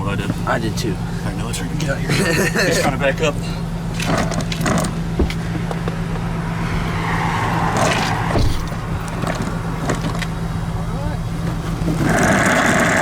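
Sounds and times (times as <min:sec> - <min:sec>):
car engine humming: 0:00.0 - 0:13.0
brief rushing noise: 0:05.0 - 0:11.1.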